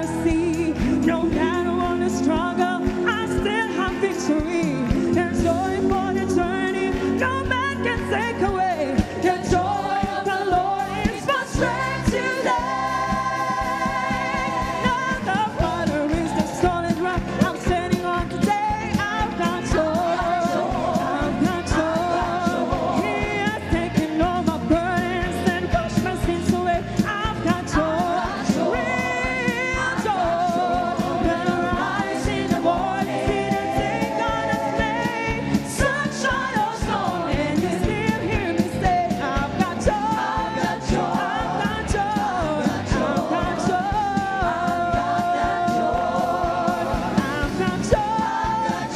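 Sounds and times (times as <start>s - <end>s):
band with steady beat: 0.0s - 48.9s
person singing: 0.0s - 48.9s
choir voices: 8.9s - 17.0s, 19.3s - 24.2s, 27.7s - 48.9s.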